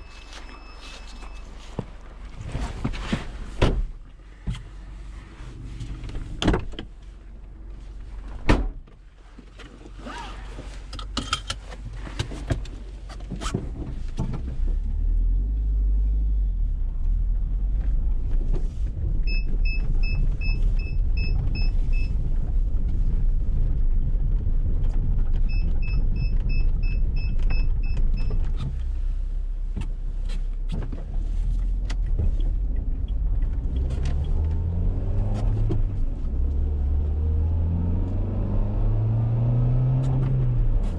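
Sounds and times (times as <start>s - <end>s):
car engine rumbling: 0.0s - 40.9s
car door shutting: 0.1s - 3.9s, 5.8s - 6.9s, 8.4s - 9.0s.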